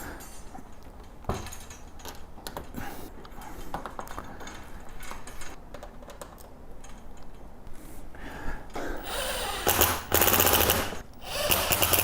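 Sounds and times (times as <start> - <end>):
metal parts clinking and knocking: 0.0 - 2.8.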